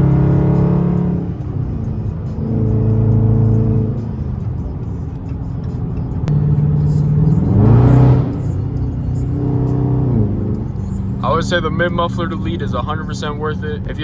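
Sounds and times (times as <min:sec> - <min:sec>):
car engine droning under throttle: 0:00.0 - 0:14.0.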